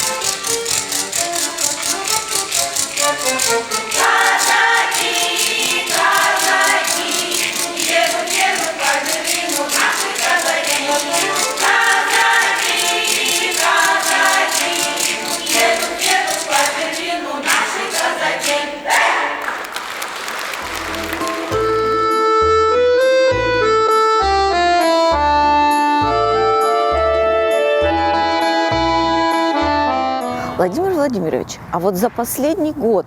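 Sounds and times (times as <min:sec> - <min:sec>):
choir singing: 0:00.0 - 0:22.1
fast percussion beat: 0:00.0 - 0:22.2.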